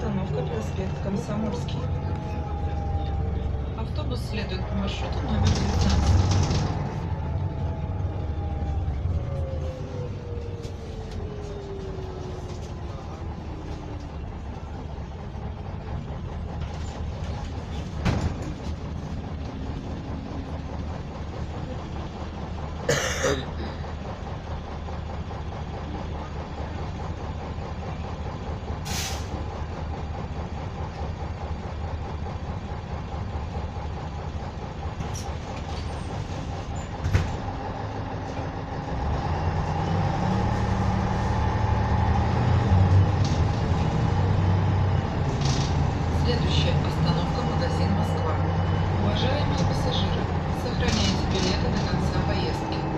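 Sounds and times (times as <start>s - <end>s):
bus diesel engine running: 0.0s - 52.9s
road noise: 0.0s - 52.9s
short air hisses: 28.8s - 29.4s.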